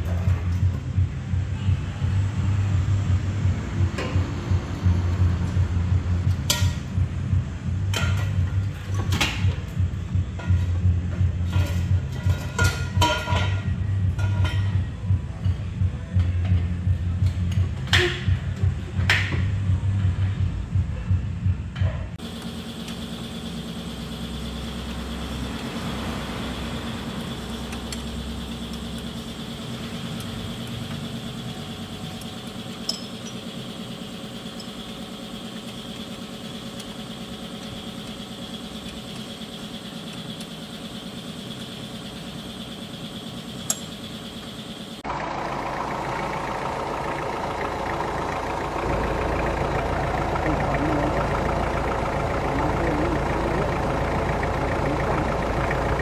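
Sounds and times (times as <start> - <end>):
car engine idling: 0.0 - 56.0
music: 0.1 - 22.2.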